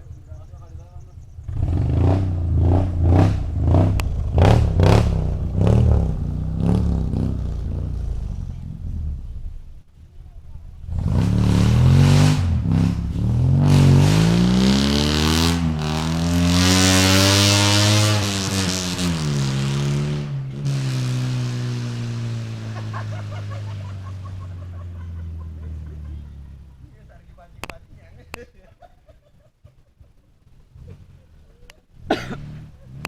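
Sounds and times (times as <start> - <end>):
car engine revving: 0.5 - 28.0, 31.9 - 33.0.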